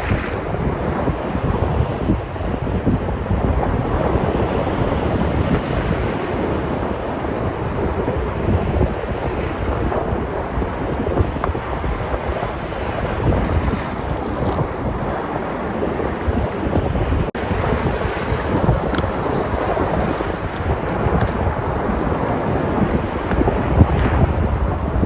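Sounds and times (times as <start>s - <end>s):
sea surf breaking ashore: 0.0s - 25.0s
wind buffeting microphone: 0.0s - 25.0s.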